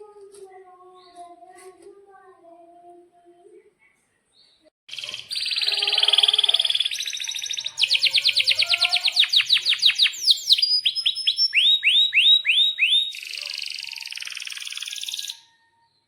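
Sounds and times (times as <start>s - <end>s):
canary singing: 4.9s - 16.0s.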